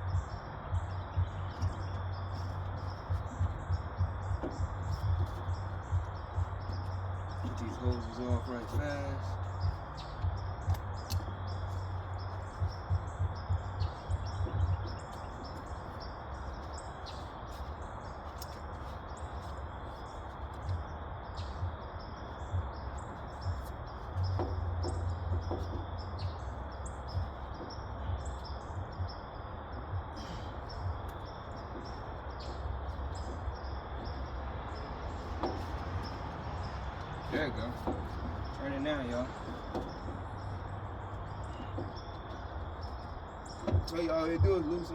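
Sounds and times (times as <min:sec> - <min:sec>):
low rumble: 0:00.0 - 0:18.2
birds chirping: 0:00.0 - 0:44.9.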